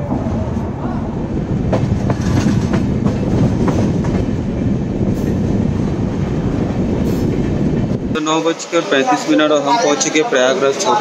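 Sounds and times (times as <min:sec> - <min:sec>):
train wheels rumbling on rails: 0:00.0 - 0:11.0
clickety-clack rail clicks: 0:01.7 - 0:04.4.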